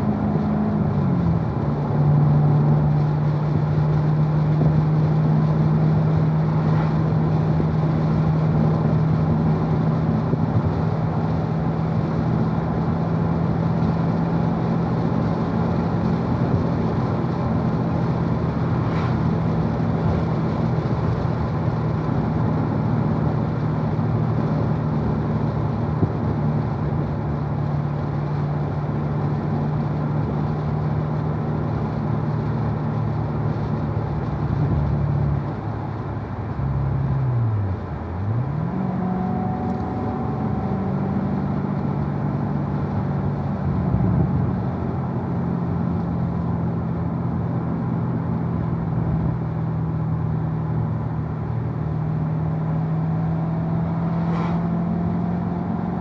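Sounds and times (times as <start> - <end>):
car engine drone: 0.0 - 56.0
road and wind noise: 0.0 - 56.0.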